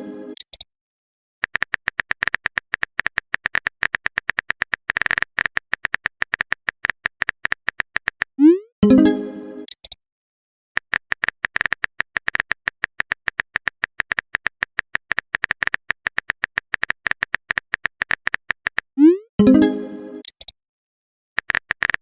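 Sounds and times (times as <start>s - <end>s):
typing clicks: 0.4s - 0.7s, 1.4s - 8.4s, 9.7s - 10.0s, 10.8s - 18.9s, 20.2s - 20.6s, 21.4s - 22.0s
message notification chime: 8.8s - 9.4s, 19.4s - 20.1s.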